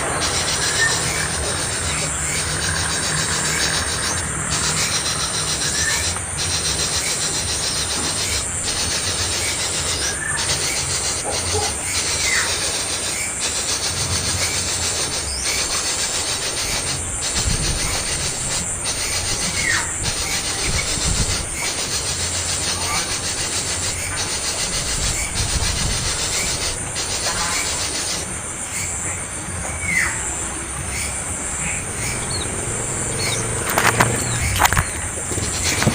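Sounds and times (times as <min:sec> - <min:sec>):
young bird begging calls: 0:29.8 - 0:35.9
steady rasping noise: 0:30.3 - 0:35.9.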